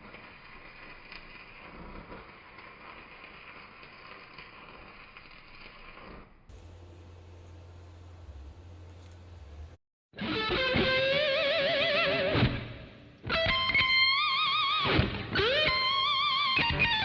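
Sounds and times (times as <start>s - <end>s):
distorted electric guitar: 10.2s - 17.0s.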